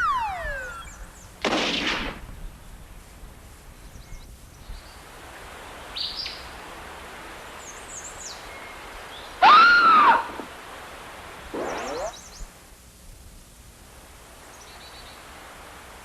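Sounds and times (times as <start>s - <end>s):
birds chirping: 0.0s - 1.4s, 11.6s - 12.5s
steady outdoor hiss: 0.0s - 16.0s
loud arching bird call: 9.4s - 10.5s, 11.6s - 12.3s.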